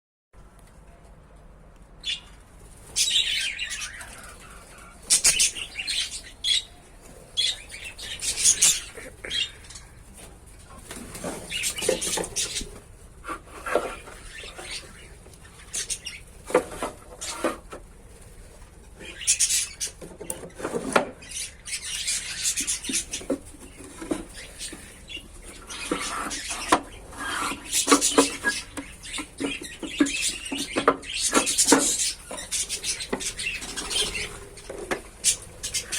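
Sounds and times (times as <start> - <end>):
lovebirds chirping: 2.0 - 35.9
wings flapping: 7.4 - 12.9.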